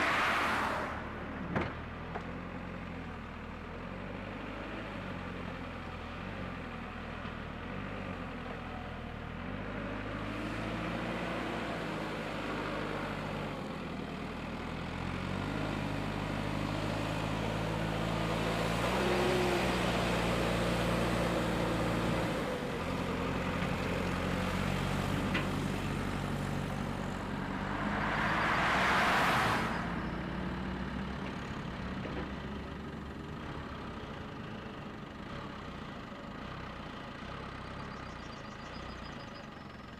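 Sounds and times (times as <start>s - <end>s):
vehicle engine revving: 15.0s - 31.2s.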